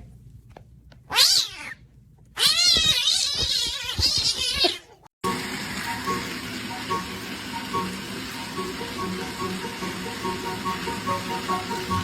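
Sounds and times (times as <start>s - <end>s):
cat meowing: 1.1s - 1.8s, 2.4s - 5.1s
cat yowling: 1.1s - 1.8s, 2.4s - 5.0s.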